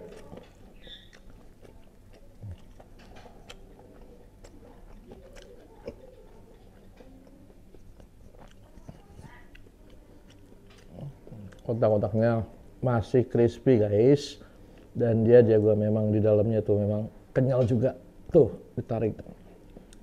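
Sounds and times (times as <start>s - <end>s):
person chewing crispy food: 0.0s - 11.8s.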